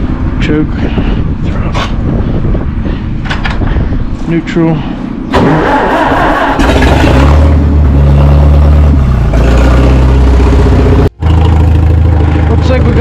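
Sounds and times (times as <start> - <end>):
tractor engine starting and running: 3.2 - 3.7, 5.3 - 13.0.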